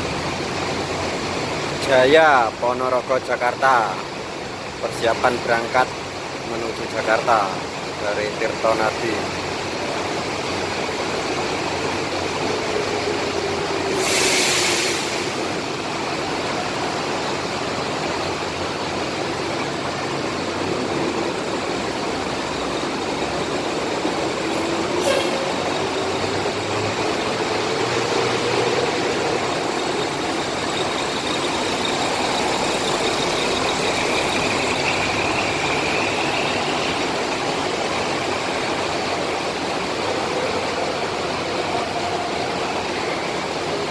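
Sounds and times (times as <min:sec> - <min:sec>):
diesel bus engine running: 0:00.0 - 0:43.9
heavy rain hissing: 0:00.0 - 0:43.9
air-brake hiss: 0:13.0 - 0:16.0, 0:23.6 - 0:26.4.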